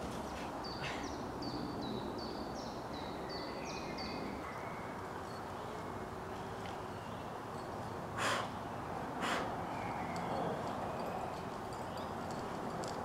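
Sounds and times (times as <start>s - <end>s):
small songbird singing: 0.3s - 6.1s, 9.6s - 12.2s.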